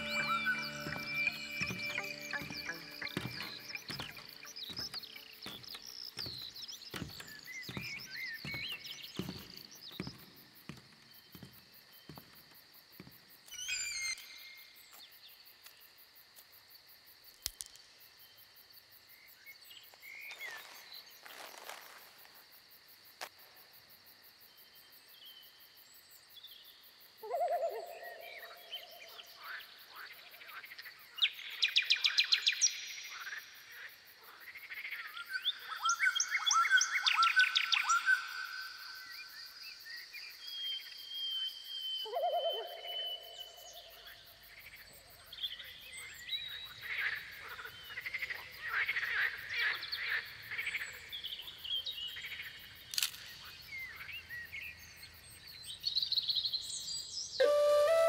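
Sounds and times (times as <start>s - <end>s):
high clicking notes: 0.0s - 5.6s
birds chirping and calling: 0.0s - 10.1s
footsteps climbing stairs: 0.0s - 13.5s.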